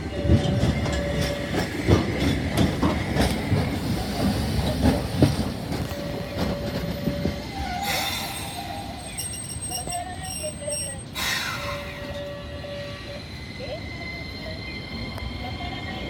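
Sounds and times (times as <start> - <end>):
streetcar wheels clacking: 0.0 - 12.6.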